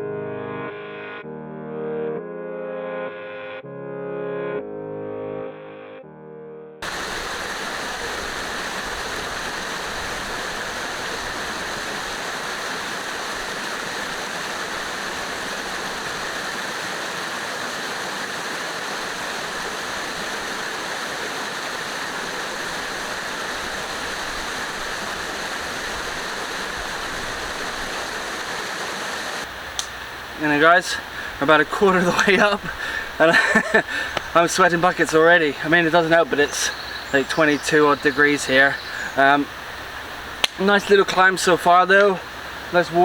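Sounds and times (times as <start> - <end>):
music track: 0.0 - 6.8
waterfall rushing: 6.8 - 43.0.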